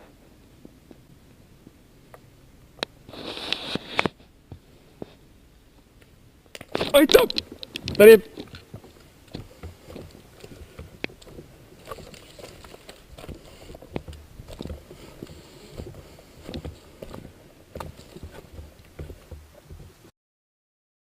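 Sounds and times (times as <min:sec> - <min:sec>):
footsteps and gear rustling: 0:06.5 - 0:20.1.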